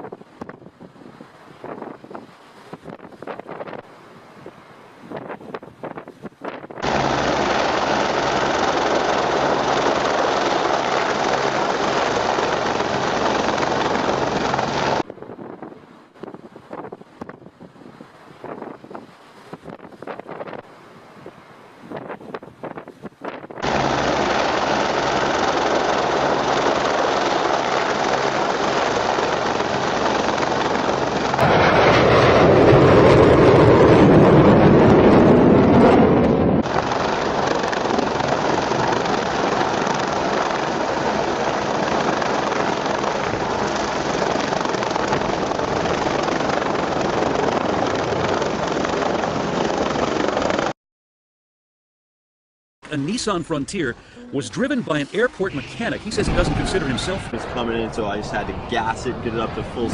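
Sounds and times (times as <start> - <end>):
vehicle rushing noise: 54.6 - 59.3.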